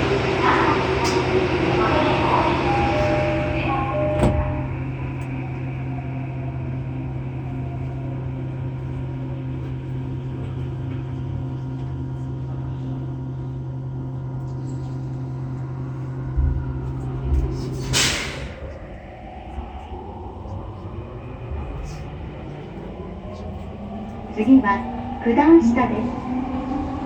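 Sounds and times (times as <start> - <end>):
train doors shutting: 0.0 - 6.9, 14.7 - 19.8
two-tone door chime: 2.4 - 4.8.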